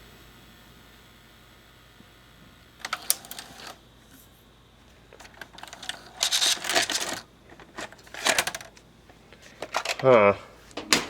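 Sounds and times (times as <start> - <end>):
tape mechanism clicking and clattering: 2.8 - 3.8, 5.1 - 8.9, 9.5 - 11.0.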